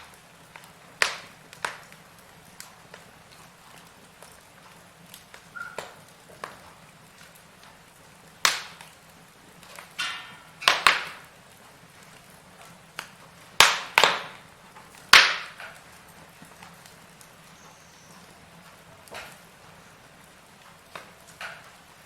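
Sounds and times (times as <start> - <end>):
firewood crackling and popping: 0.0 - 22.0
whistling hiss: 5.5 - 6.0, 17.5 - 18.3.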